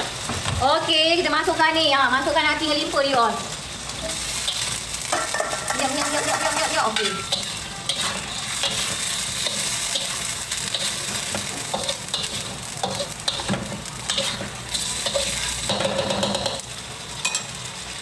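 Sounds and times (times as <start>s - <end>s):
meat sizzling in a wok: 0.0s - 18.0s
metal spatula scraping pan: 4.0s - 16.6s.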